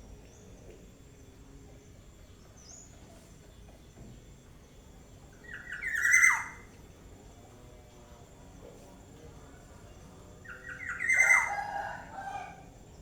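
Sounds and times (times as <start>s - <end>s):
faint high bird chirp: 5.3s - 6.7s, 10.4s - 11.9s.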